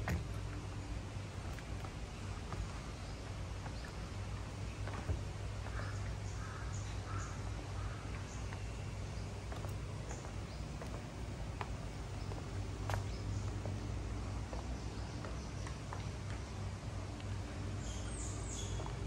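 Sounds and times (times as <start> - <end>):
steady low hum: 0.0 - 19.0
bird calls: 2.5 - 11.0, 17.8 - 19.0.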